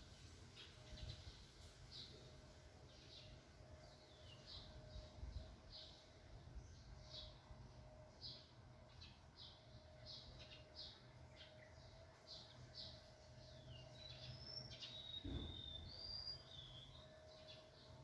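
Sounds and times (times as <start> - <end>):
whistled bird notes: 14.0 - 17.1.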